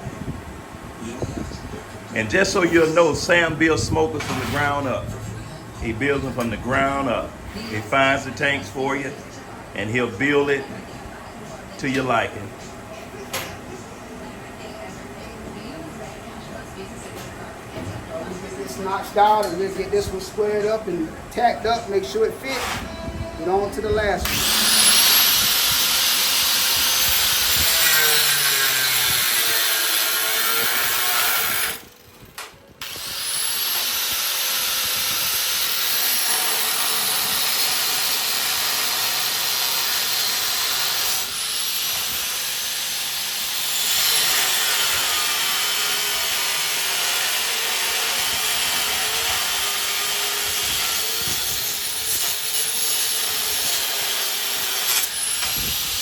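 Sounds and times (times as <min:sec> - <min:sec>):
angle grinder cutting steel: 0:24.2 - 0:32.0, 0:32.8 - 0:56.0.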